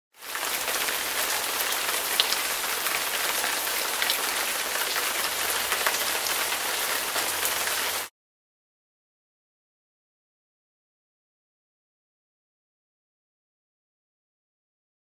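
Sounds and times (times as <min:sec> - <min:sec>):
raindrops ticking: 0:00.2 - 0:08.1
steady rain falling: 0:00.2 - 0:08.1.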